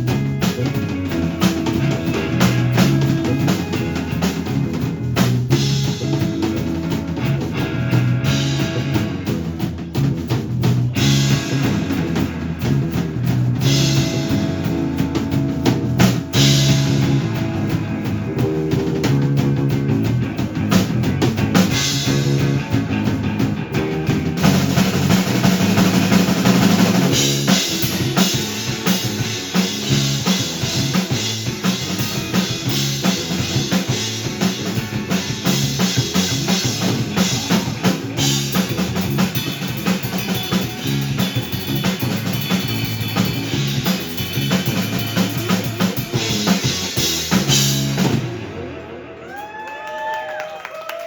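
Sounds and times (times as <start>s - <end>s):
drum kit kick and snare: 0.0s - 48.7s
rock band playing: 0.0s - 51.0s.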